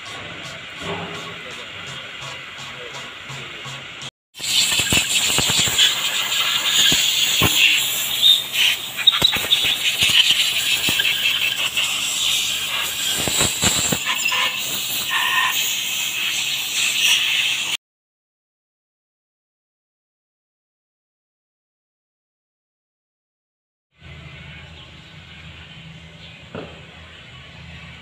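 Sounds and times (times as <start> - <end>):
high-pitched squealing hiss: 4.4 - 17.8.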